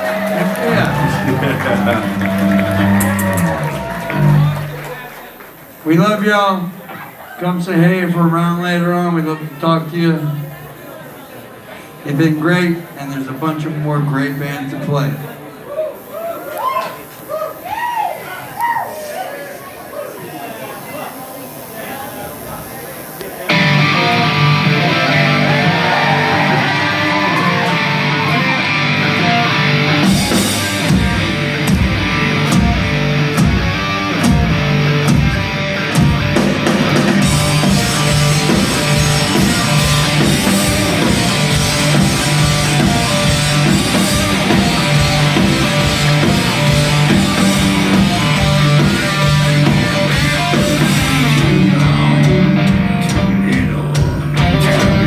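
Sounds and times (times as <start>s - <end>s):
live rock band playing: 0.0s - 4.9s, 23.5s - 55.0s
drum hits: 29.1s - 55.0s.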